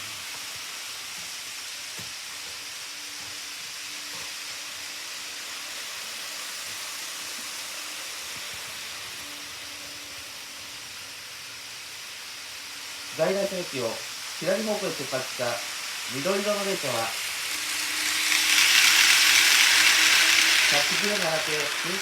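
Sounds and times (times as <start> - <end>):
model train motor hum: 0.0 - 22.0
steady hiss: 0.0 - 22.0.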